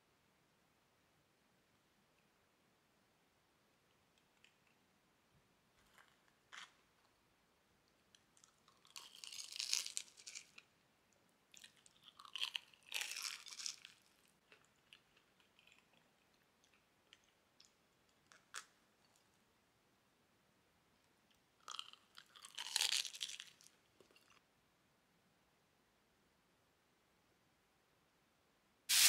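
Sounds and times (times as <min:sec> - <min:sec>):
small crackles: 0:05.7 - 0:07.2, 0:07.9 - 0:10.8, 0:11.5 - 0:19.4, 0:21.3 - 0:24.4
fried crust crunching when chewed: 0:08.4 - 0:10.7, 0:11.6 - 0:19.2, 0:21.6 - 0:24.4.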